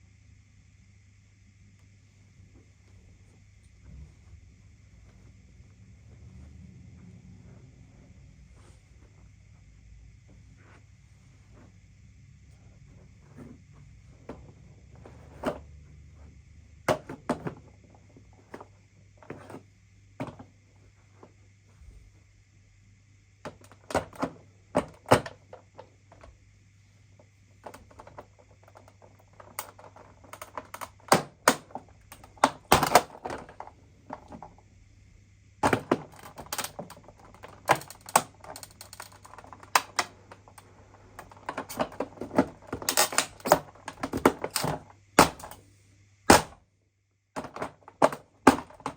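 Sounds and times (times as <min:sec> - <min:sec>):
faint steady hum: 0:00.0 - 0:48.9
plastic and metal parts clicking: 0:35.6 - 0:45.6.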